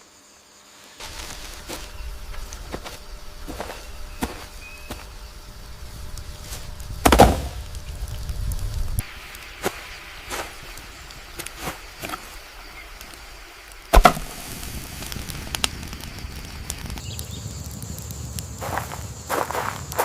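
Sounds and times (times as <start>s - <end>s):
heavy thump: 7.0s - 7.6s.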